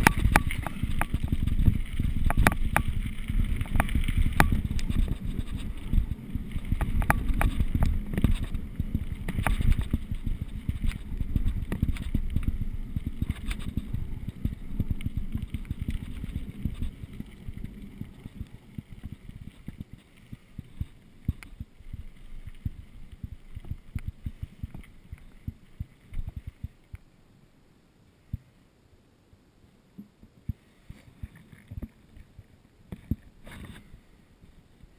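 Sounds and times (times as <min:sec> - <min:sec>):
bike rattling and knocking: 0:00.0 - 0:20.0
bike tyres rumbling over ground: 0:00.0 - 0:26.8
wind buffeting microphone: 0:00.0 - 0:26.8.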